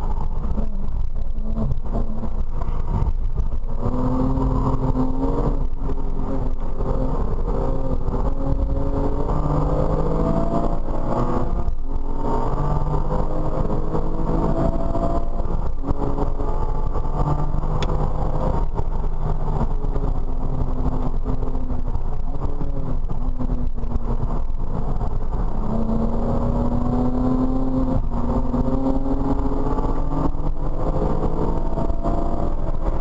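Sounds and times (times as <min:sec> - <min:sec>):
car engine revving: 0:00.0 - 0:33.0
road rumble: 0:00.0 - 0:33.0.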